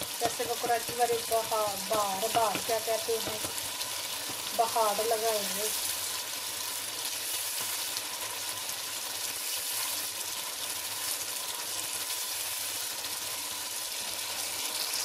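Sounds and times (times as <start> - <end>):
spices sizzling in oil: 0.0 - 15.0.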